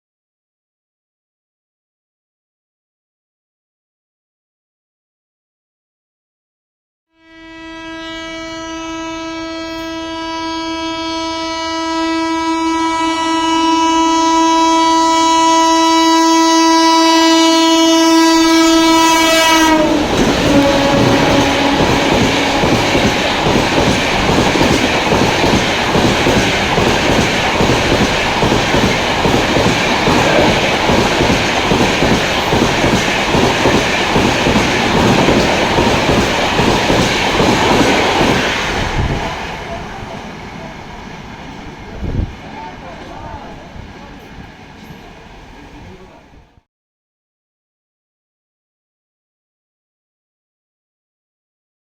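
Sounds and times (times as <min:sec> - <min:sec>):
train horn blast: 0:07.1 - 0:24.3
train wheels clattering over rail joints: 0:20.0 - 0:38.5.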